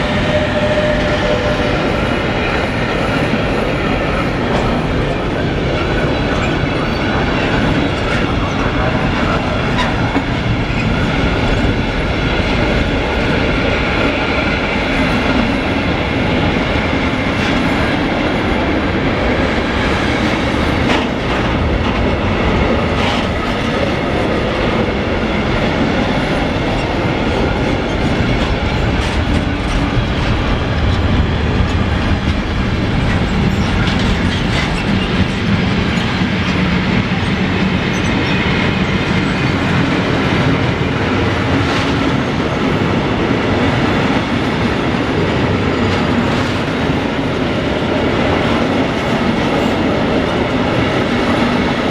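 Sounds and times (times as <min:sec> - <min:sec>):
freight train wheels clattering: 0:00.0 - 0:51.9.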